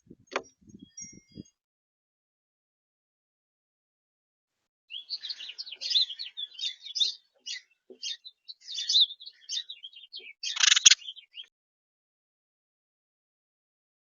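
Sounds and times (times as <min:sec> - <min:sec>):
birds chirping and trilling: 0:00.1 - 0:01.6, 0:04.9 - 0:11.5.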